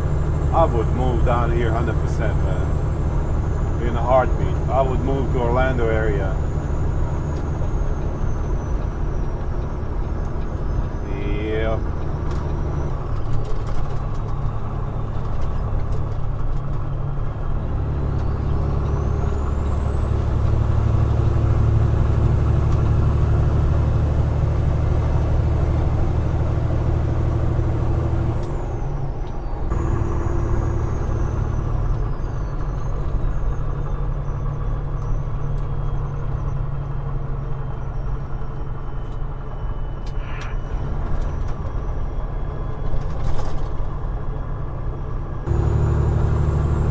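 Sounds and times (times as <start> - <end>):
truck diesel engine from cab: 0.0 - 46.9
turbo whine: 29.7 - 32.6, 45.5 - 46.9.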